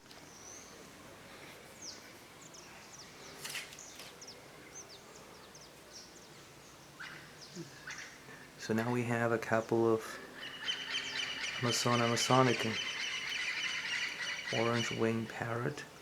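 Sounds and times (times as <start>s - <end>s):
faint steady background noise: 0.0s - 16.0s
harsh bird call: 6.8s - 16.0s.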